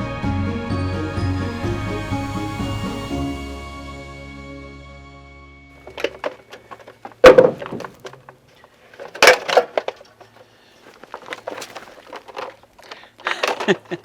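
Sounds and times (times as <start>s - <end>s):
objects knocking and clattering: 5.8s - 14.0s
loud thumps: 7.2s - 8.0s.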